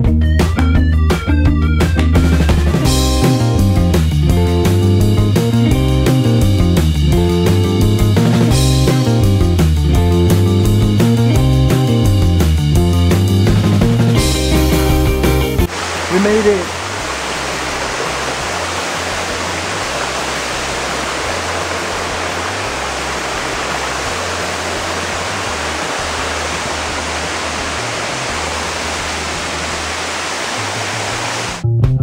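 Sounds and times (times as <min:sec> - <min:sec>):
guitar music: 0:00.0 - 0:15.7
waterfall rushing: 0:15.6 - 0:31.6.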